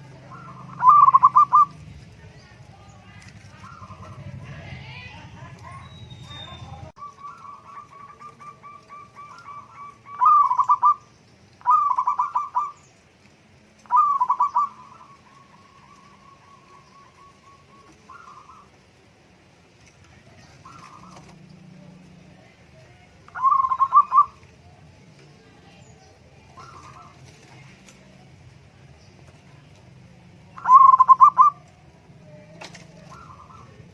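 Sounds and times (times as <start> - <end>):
loud trilled coos: 0.0 - 1.8, 5.7 - 12.8, 23.3 - 24.4, 30.6 - 31.7
doves cooing: 0.0 - 33.9.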